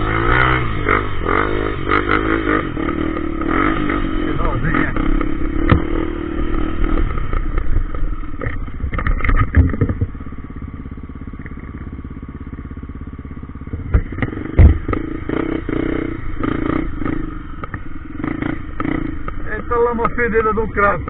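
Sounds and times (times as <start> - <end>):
motorcycle engine running: 0.0 - 21.0
clattering knocks from bike: 7.6 - 10.2, 13.7 - 15.0.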